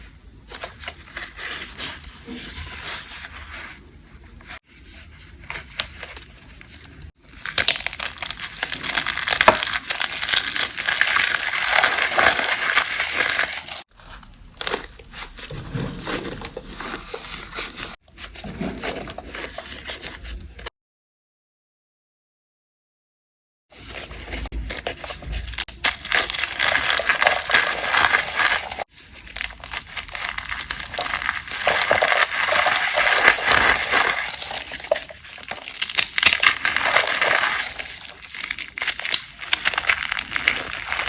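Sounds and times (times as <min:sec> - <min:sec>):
chalk powder crunching: 0:07.4 - 0:15.5, 0:25.2 - 0:41.0.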